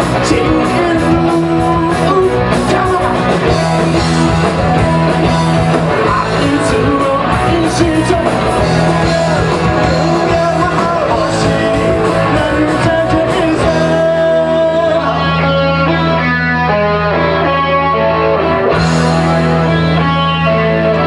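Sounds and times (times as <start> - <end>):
guitar chords ringing: 0.0 - 21.0
live rock band playing: 0.0 - 21.0.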